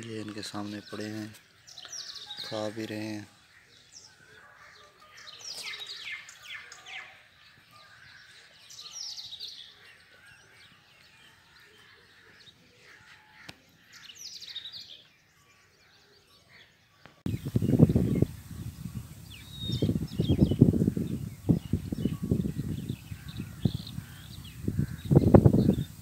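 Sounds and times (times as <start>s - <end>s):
songbird singing high notes: 17.3s - 26.0s.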